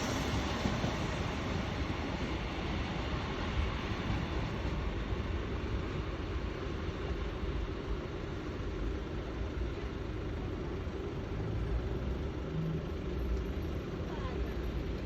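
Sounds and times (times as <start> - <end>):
train rumbling past: 0.0 - 10.2.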